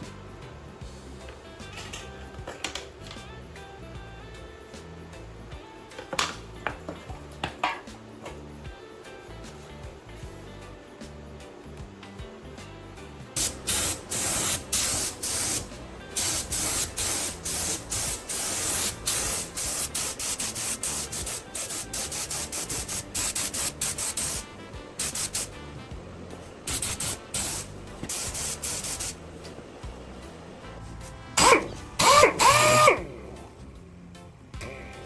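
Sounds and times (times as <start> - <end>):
paint spray hissing: 13.4 - 25.7, 26.6 - 29.6.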